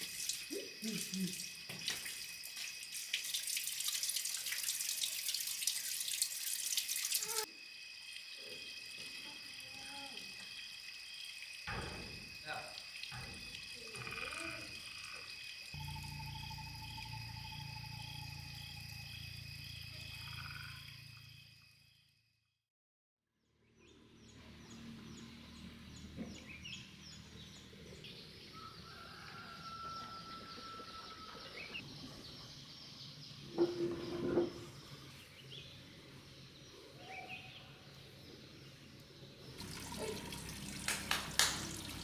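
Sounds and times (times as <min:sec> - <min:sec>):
insects chirping: 0:00.0 - 0:22.4, 0:24.5 - 0:42.0
water noise with sharp clicks: 0:01.6 - 0:07.4, 0:39.6 - 0:42.0
animal calls: 0:13.8 - 0:15.3.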